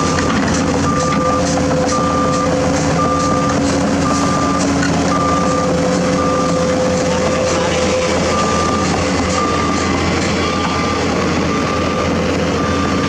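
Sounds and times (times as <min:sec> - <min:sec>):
diesel engine running: 0:00.0 - 0:13.0
reversing alarm beeping: 0:00.0 - 0:13.0.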